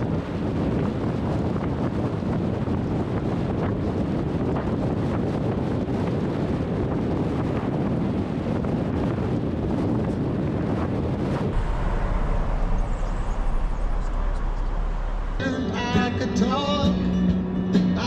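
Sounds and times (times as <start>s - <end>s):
wind buffeting microphone: 0.0s - 17.8s
vehicle road noise: 0.0s - 18.0s
steady low hum: 5.8s - 17.6s.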